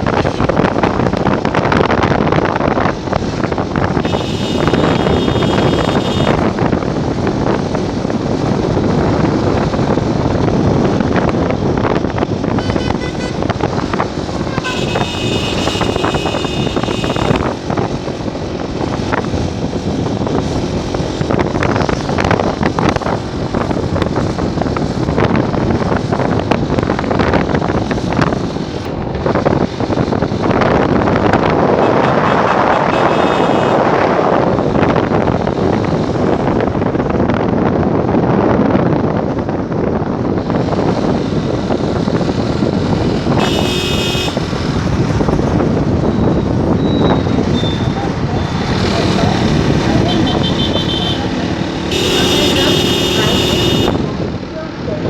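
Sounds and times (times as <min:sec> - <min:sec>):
road noise: 0:00.0 - 0:55.0
wind buffeting microphone: 0:00.0 - 0:55.0
horn sounding: 0:04.0 - 0:06.5, 0:14.4 - 0:17.6, 0:31.8 - 0:33.9, 0:43.4 - 0:44.5, 0:49.9 - 0:54.1
motorcycle engine: 0:04.0 - 0:06.6, 0:12.6 - 0:17.8, 0:31.7 - 0:33.8, 0:43.0 - 0:54.1.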